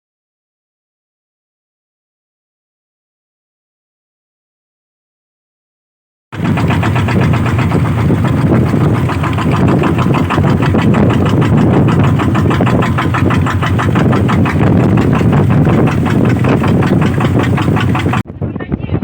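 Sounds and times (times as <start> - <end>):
motor cart engine running: 6.4 - 18.2.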